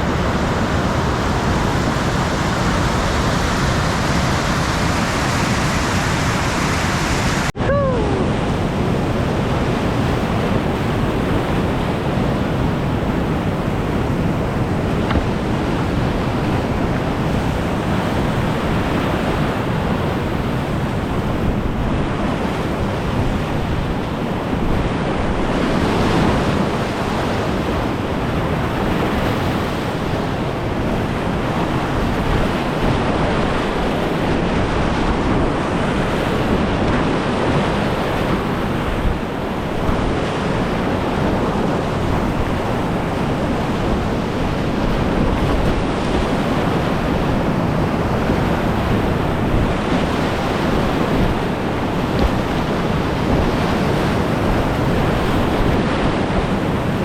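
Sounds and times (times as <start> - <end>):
whitewater rapids roaring: 0.0 - 10.4
wind buffeting microphone: 0.0 - 57.0.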